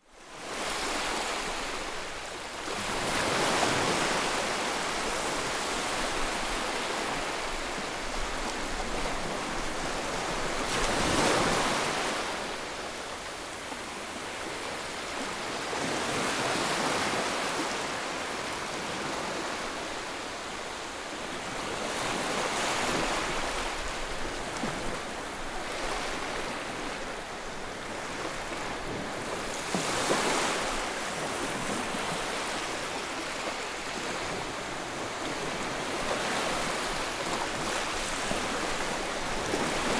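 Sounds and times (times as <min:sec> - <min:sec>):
ocean waves breaking: 0:21.4 - 0:39.9.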